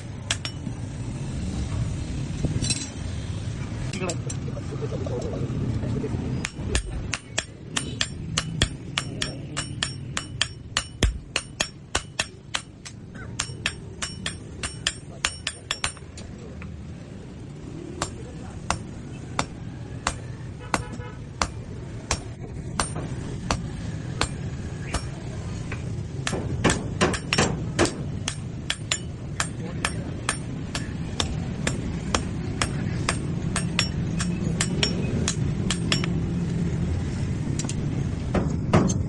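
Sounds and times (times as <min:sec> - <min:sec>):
hammer striking steel on anvil: 0:00.2 - 0:00.8, 0:06.4 - 0:16.2, 0:18.0 - 0:25.2, 0:26.2 - 0:36.2.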